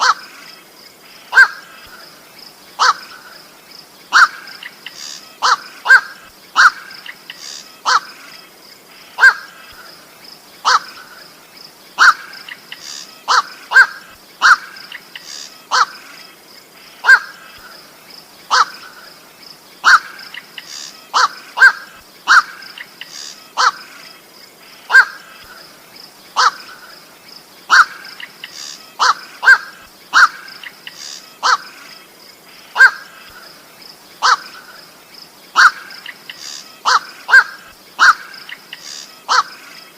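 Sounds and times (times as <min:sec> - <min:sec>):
faint high hiss: 0:00.0 - 0:39.9
heron harsh kwak calls: 0:13.2 - 0:16.0, 0:21.1 - 0:23.8, 0:26.4 - 0:26.7, 0:27.7 - 0:31.7, 0:32.8 - 0:33.1, 0:35.6 - 0:39.6.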